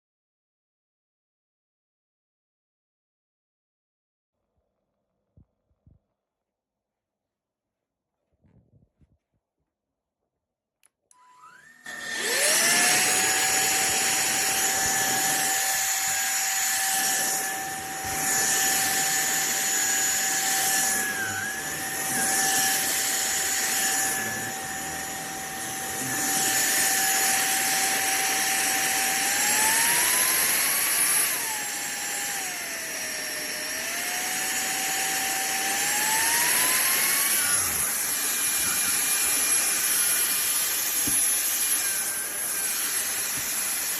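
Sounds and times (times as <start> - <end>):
vacuum cleaner motor whining: 11.1 - 43.9.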